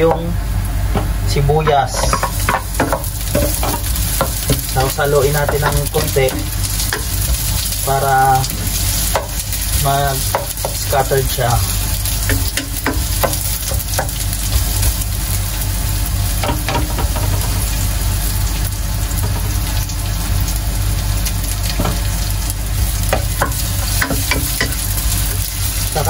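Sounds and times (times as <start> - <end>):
onion sizzling in hot oil: 0.0 - 26.0
wooden spoon stirring: 1.6 - 11.0.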